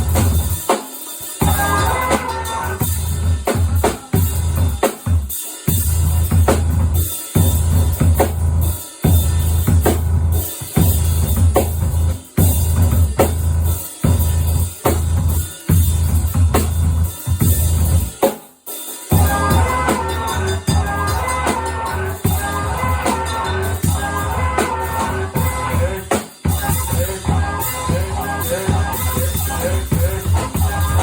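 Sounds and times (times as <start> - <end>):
hard noisy drum hits: 0.0 - 18.4, 19.0 - 31.0
heavy low bass rumble: 19.2 - 31.0.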